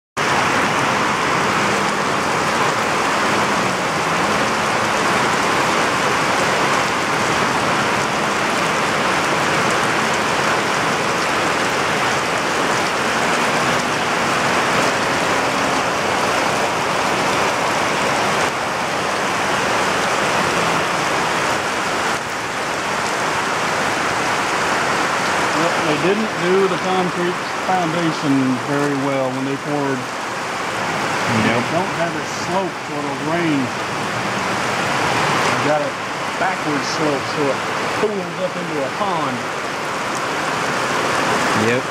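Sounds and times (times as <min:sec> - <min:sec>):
heavy rain on concrete: 0:00.2 - 0:41.9.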